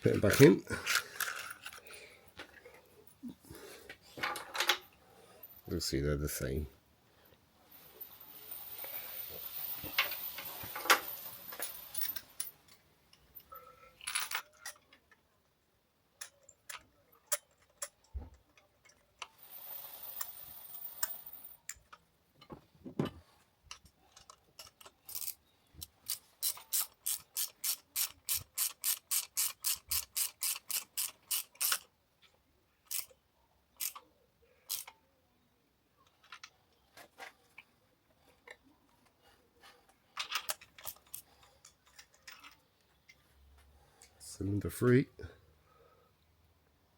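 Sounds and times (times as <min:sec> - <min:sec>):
hiss: 0:19.4 - 0:21.4
socket ratchet clicking: 0:26.0 - 0:31.9.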